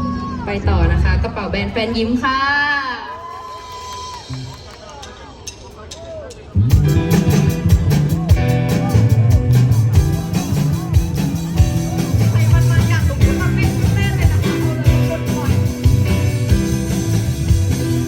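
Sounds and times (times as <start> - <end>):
drums keeping a steady beat: 4.2 - 18.0
bass guitar: 6.6 - 18.0
electric guitar: 6.7 - 18.0.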